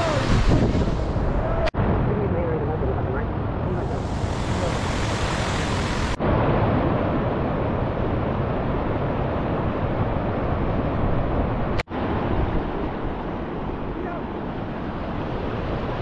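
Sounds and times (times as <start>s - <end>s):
waterfall rushing: 0.0s - 1.4s, 3.9s - 6.2s.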